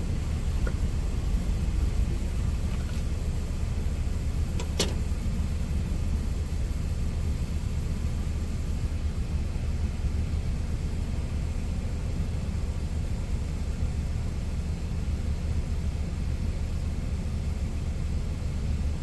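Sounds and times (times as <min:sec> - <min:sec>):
truck engine idling: 0:00.0 - 0:19.0
sharp click: 0:04.6 - 0:05.0.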